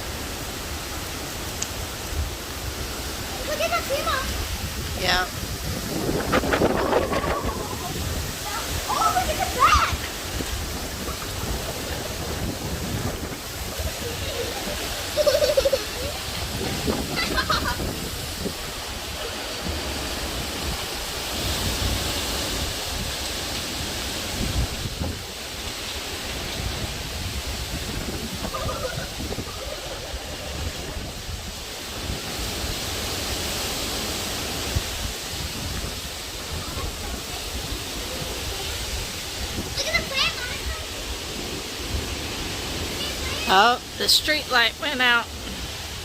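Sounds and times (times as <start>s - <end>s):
strong wind buffeting microphone: 0.0s - 46.0s.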